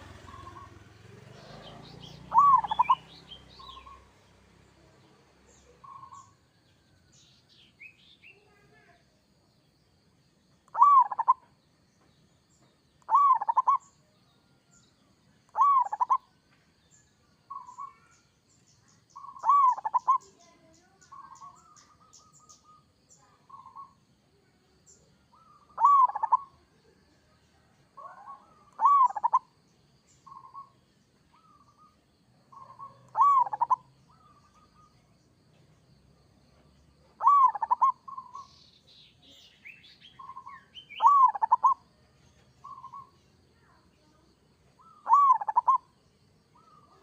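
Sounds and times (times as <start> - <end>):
dove cooing: 0.0 - 4.0, 10.7 - 11.4, 13.1 - 13.8, 15.5 - 16.2, 19.2 - 20.4, 25.3 - 26.7, 28.0 - 29.5, 32.5 - 34.9, 37.2 - 38.5, 40.2 - 41.9, 44.8 - 45.9.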